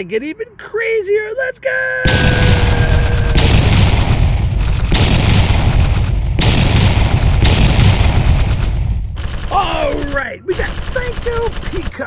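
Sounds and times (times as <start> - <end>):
fireworks crackling and booming: 2.1 - 10.1.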